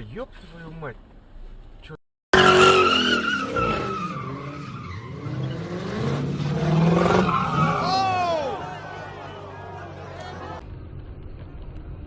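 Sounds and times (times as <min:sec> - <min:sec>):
car tyres squealing: 0:02.3 - 0:10.6.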